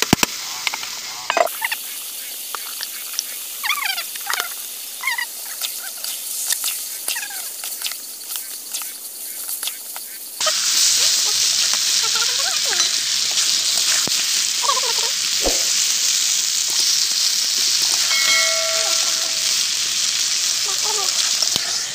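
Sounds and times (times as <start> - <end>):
chicken sizzling in a pan: 0.0 - 21.9
oil crackling: 0.0 - 21.9
short ringing tone: 18.0 - 19.6.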